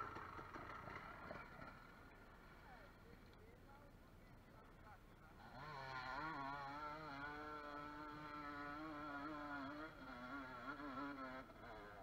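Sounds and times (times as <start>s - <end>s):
dirt bike engine at high revs: 5.4s - 12.0s.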